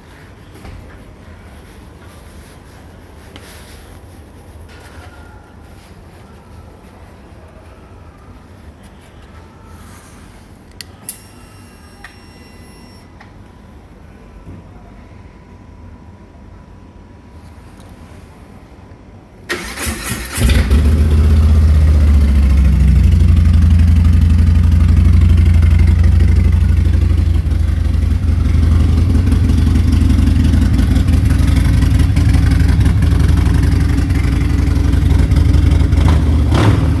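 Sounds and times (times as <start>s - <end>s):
electric starter cranking: 19.5s - 20.9s
motorcycle engine idling: 20.4s - 37.0s.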